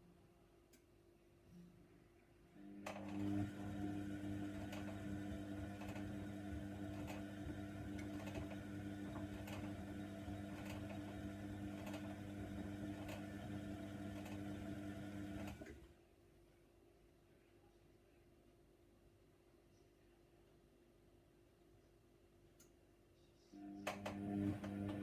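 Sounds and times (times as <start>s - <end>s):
washer dryer humming: 2.7s - 15.9s, 23.6s - 25.0s.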